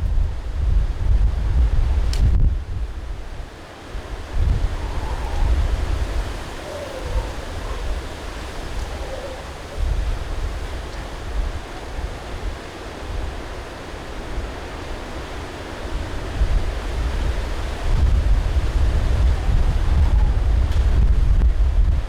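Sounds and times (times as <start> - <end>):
gusting wind buffeting microphone: 0.0 - 22.0.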